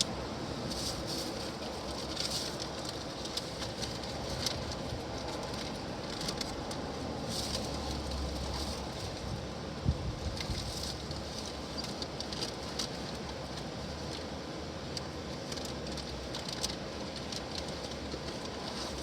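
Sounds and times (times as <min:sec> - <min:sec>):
wind rumbling on microphone: 0:03.8 - 0:11.9
rain drops pattering: 0:10.3 - 0:19.0.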